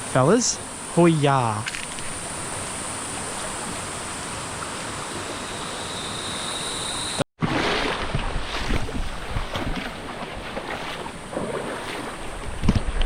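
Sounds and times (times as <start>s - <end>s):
high-pitched insect drone: 0.0s - 7.2s.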